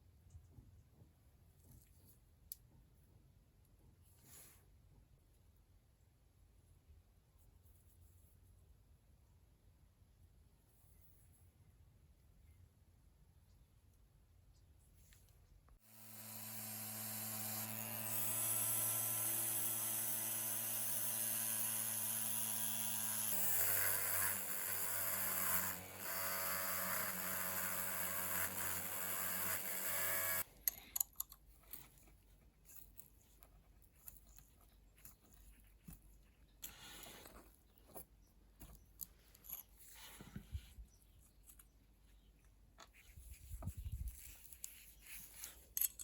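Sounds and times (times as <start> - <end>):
small electric power tool running: 15.8 - 30.5.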